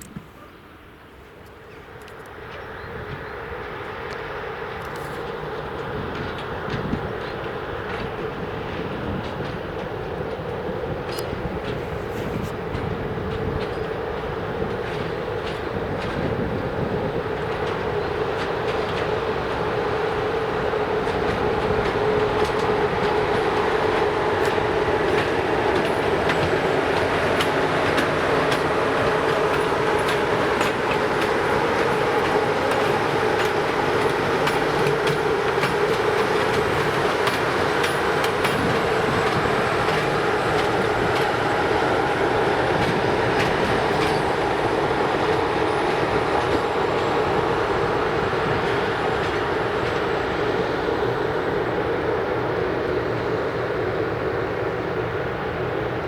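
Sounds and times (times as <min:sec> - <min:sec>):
train wheels rumbling on rails: 0:00.0 - 0:56.0
wheels clicking over rail joints: 0:04.0 - 0:52.1.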